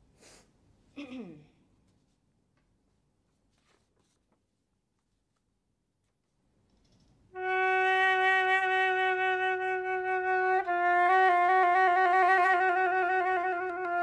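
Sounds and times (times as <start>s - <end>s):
flute playing: 7.4s - 14.0s.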